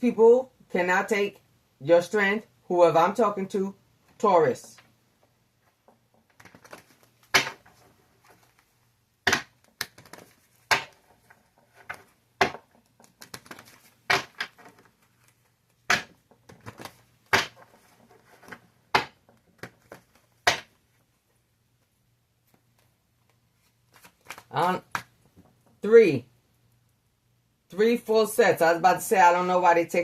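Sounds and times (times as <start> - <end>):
soft rustling of cards: 4.0 - 25.9
cards snapping: 9.3 - 11.0, 12.4 - 14.9.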